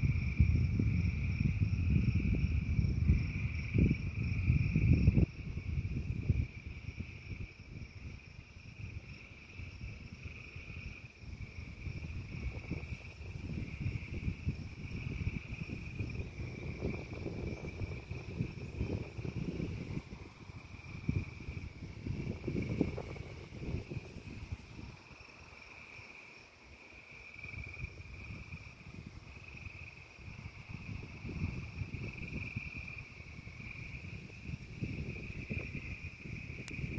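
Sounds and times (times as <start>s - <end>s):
frog chorus trilling: 8.4s - 36.9s.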